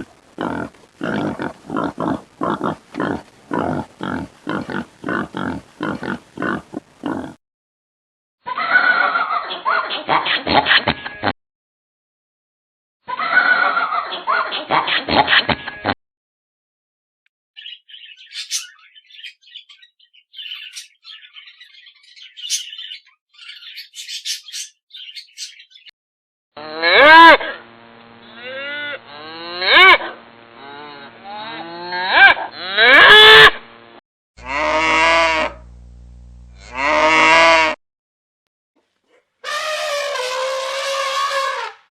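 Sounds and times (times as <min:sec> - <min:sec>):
cattle mooing: 0:26.6 - 0:27.6, 0:28.3 - 0:33.4, 0:34.4 - 0:35.6, 0:36.6 - 0:37.8.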